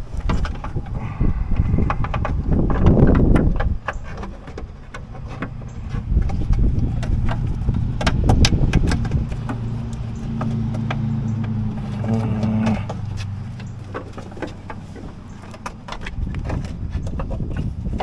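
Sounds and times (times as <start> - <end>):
clicks and knocks: 0.1 - 18.0
motor humming: 5.2 - 16.9.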